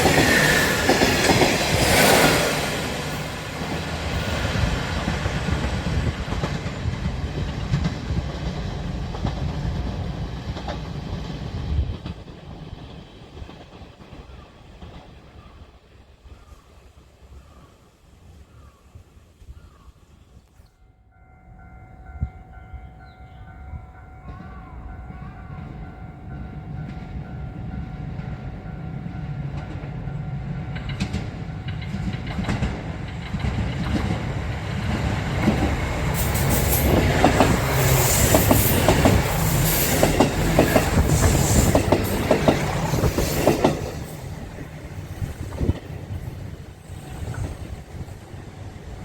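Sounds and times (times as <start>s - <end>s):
wheels clacking over rail joints: 0.0s - 15.5s, 30.7s - 48.3s.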